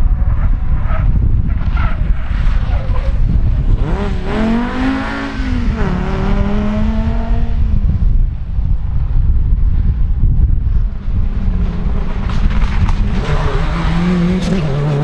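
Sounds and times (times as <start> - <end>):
rally car engine accelerating: 1.5 - 7.7, 11.2 - 15.0.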